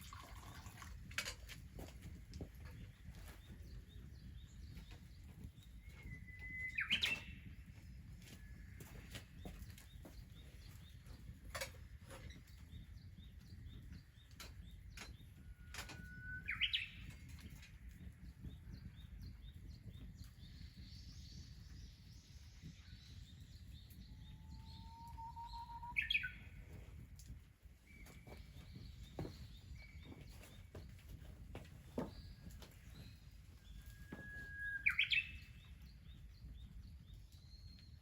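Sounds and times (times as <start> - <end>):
birds chirping and calling: 5.9 - 7.5, 31.9 - 36.5
loud sweeping bird calls: 24.2 - 26.6, 32.1 - 35.7.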